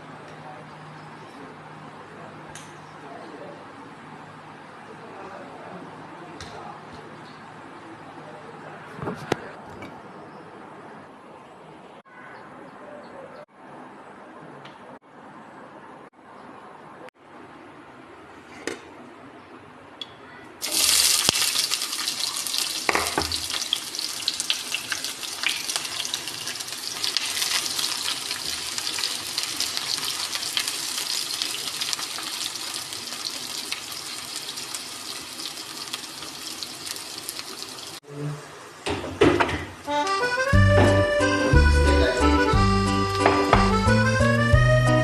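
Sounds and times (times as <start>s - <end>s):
water pouring and splashing: 20.6s - 38.0s.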